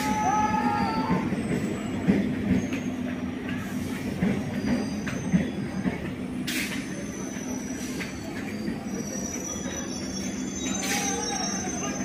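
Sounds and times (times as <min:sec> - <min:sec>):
train rumble: 0:00.0 - 0:12.0
wheel squeal: 0:04.4 - 0:06.0, 0:06.6 - 0:12.0.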